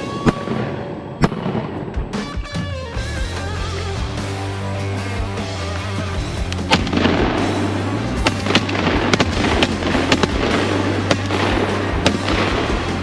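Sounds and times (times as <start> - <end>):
shotgun shots: 0.0 - 2.6, 6.6 - 13.0
background music: 0.0 - 13.0.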